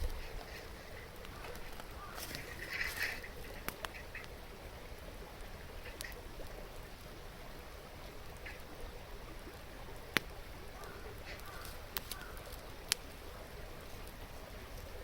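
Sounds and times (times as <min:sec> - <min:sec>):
campfire wood popping: 0:00.0 - 0:15.0
river babbling: 0:00.0 - 0:15.0.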